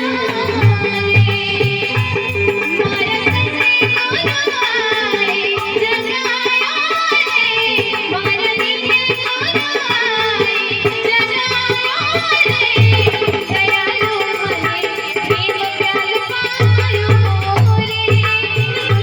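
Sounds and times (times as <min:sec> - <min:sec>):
person singing: 0:00.0 - 0:11.4
tabla drumming: 0:00.0 - 0:19.0.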